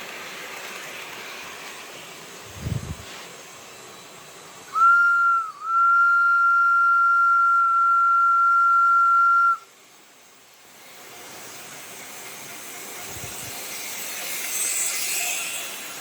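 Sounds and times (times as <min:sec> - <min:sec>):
steam locomotive whistle: 0:04.7 - 0:09.7.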